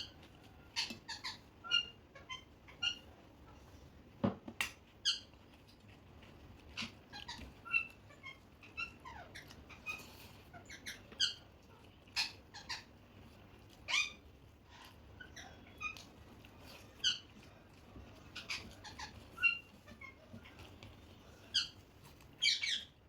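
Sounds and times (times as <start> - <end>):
parrot squeaky chirps: 0.0 - 3.1, 5.0 - 5.3, 6.8 - 11.5, 12.1 - 12.9, 13.8 - 16.1, 16.7 - 17.3, 18.3 - 20.2, 21.5 - 23.0.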